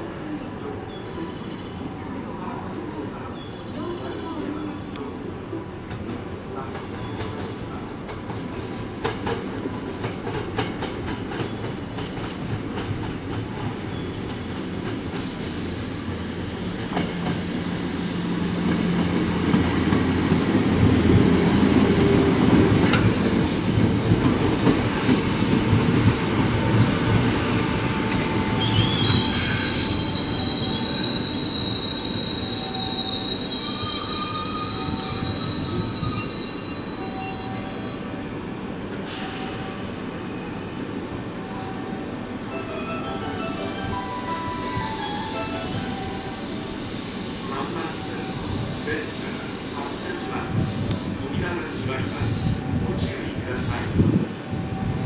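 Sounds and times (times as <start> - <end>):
train wheels rumbling and clattering: 5.8 - 33.1
high steady brake squeal: 27.0 - 38.3, 39.1 - 42.0.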